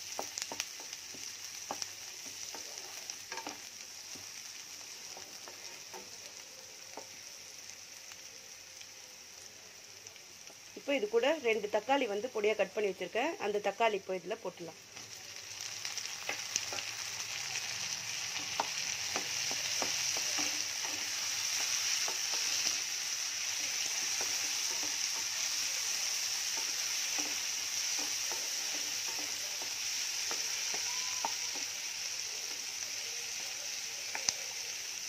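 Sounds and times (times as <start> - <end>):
vegetables sizzling in oil: 0.0 - 35.0
spatula scraping and tapping: 0.1 - 4.3, 18.4 - 22.7.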